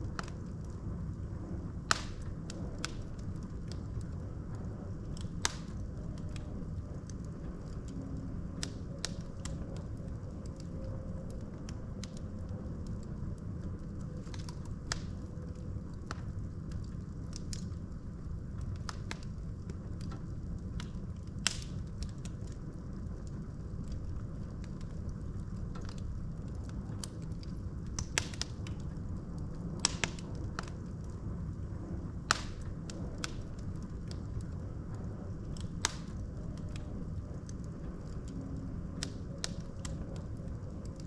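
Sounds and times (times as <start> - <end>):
burning logs crackling and popping: 0.0 - 41.0
low rumble of flames: 0.0 - 41.0.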